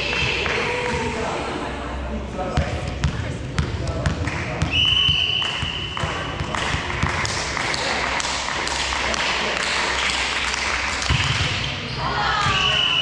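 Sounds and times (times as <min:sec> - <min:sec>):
voices in sports hall: 0:00.0 - 0:13.0.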